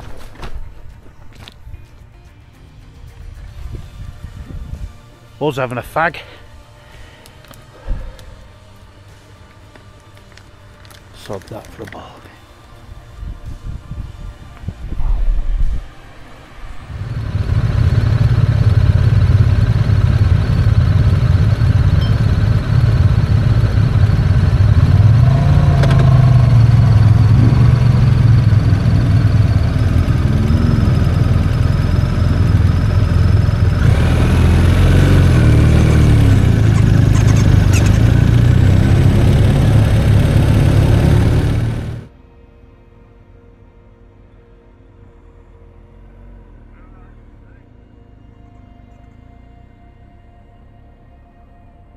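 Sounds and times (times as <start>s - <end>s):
motorcycle engine revving: 16.5s - 42.1s.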